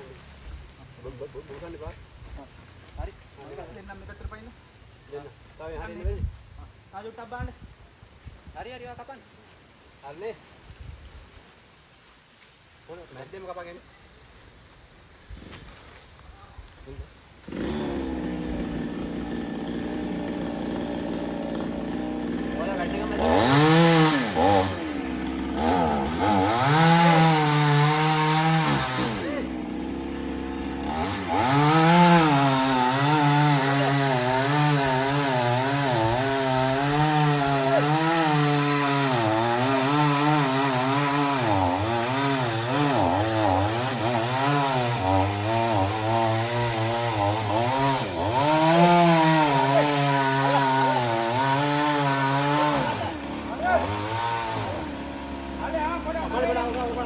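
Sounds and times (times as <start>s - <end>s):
chainsaw cutting wood: 17.4s - 57.0s.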